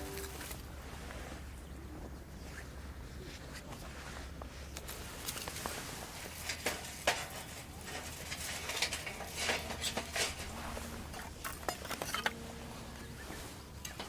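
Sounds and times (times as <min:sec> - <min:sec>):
handling clicks taps and scrapes: 0:04.7 - 0:12.4.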